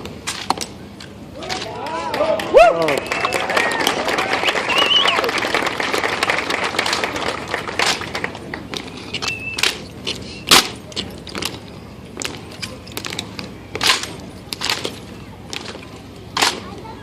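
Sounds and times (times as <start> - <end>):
rifles slapped and caught: 9.2 - 9.9, 10.5 - 11.6, 12.2 - 15.7, 16.4 - 16.6.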